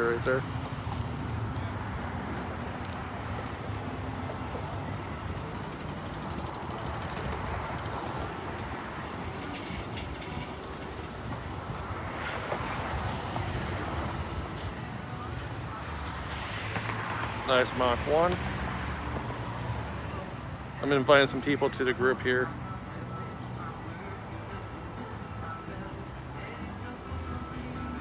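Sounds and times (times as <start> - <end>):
wind rumbling on microphone: 0.5 - 15.1.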